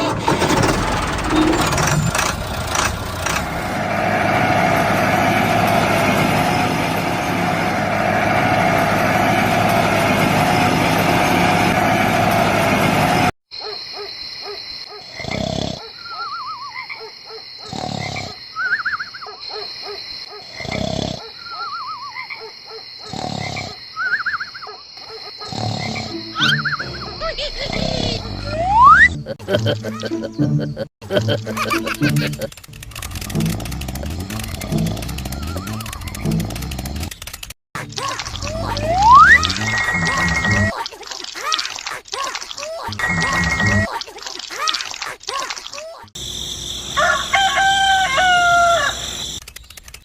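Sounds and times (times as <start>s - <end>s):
steady high tone: 26.1s - 29.2s
warbling whistles: 26.3s - 29.2s, 38.3s - 40.7s
roar-like thumps: 32.7s - 37.2s
small motor running loudly: 32.7s - 37.2s.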